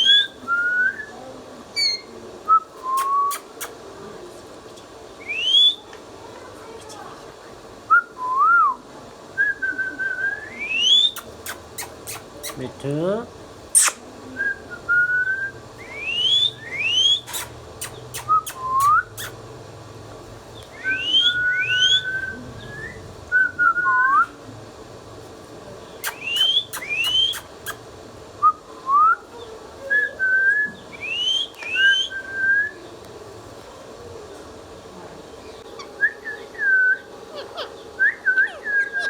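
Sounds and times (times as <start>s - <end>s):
parrot whistling: 1.8s - 2.1s, 5.2s - 5.8s, 9.5s - 12.6s, 13.8s - 19.4s, 20.7s - 24.2s, 26.0s - 27.8s, 30.0s - 32.8s, 35.8s - 39.0s.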